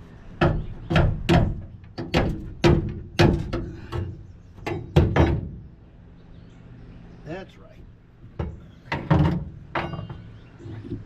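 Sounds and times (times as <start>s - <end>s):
metal-on-metal knocks: 0.4s - 5.6s, 8.3s - 10.3s.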